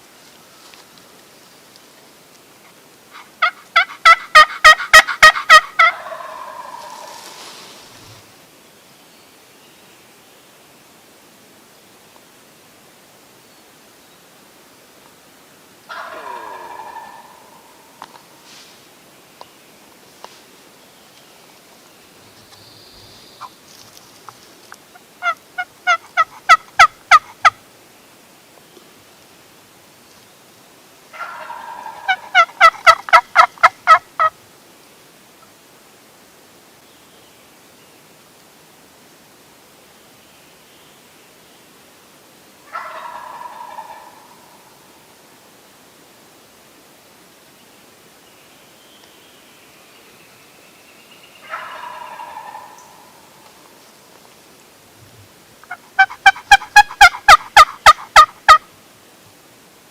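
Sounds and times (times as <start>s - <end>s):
turkey call yelps: 3.2s - 7.2s, 15.9s - 17.8s, 25.2s - 27.6s, 31.2s - 34.3s, 42.7s - 44.6s, 51.4s - 53.2s, 55.6s - 58.6s.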